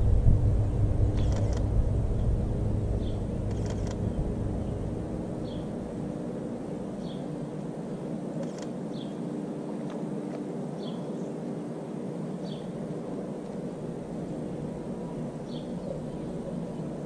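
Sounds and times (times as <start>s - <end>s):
steady low hum: 0.0s - 17.0s
small bird chirping: 1.2s - 1.6s.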